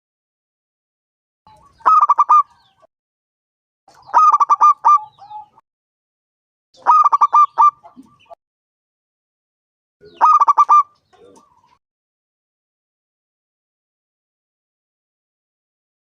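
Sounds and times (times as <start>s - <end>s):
dove cooing: 1.5s - 2.8s, 3.9s - 5.6s, 6.8s - 8.4s, 10.0s - 11.8s.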